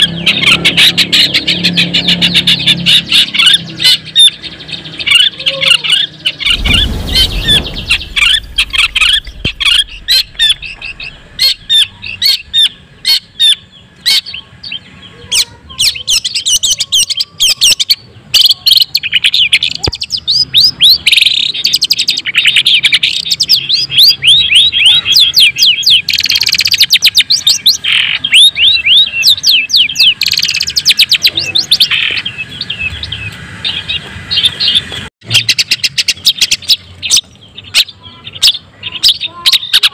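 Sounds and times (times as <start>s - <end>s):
shrike song fast downward notes: 6.4s - 13.6s.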